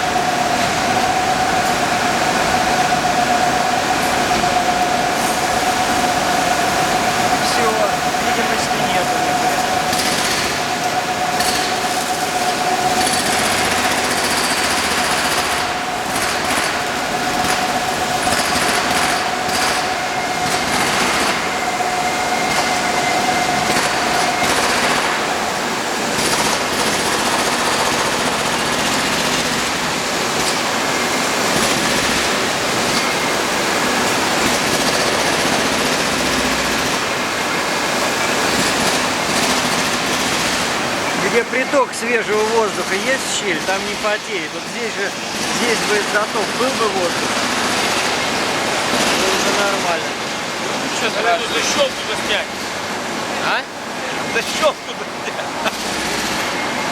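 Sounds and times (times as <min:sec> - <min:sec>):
steady whining tone: 0:00.0 - 0:29.1
machine noise with rough rattle: 0:00.0 - 0:56.9.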